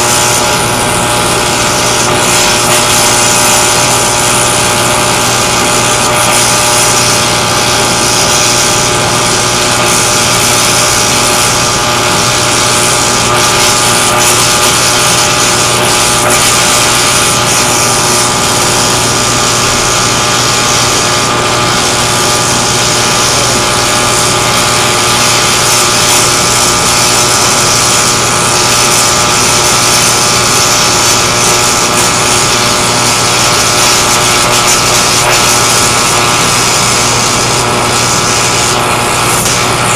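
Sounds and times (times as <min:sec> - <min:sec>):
welding equipment hissing and humming: 0:00.0 - 0:39.9.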